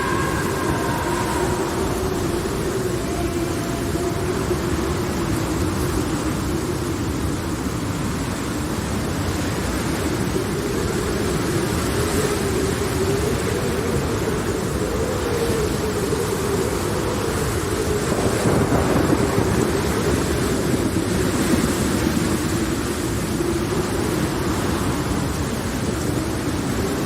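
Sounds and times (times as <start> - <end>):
thunder rumble: 0.0 - 9.0
wavering low drone: 0.0 - 19.5
steady rain: 0.0 - 27.0.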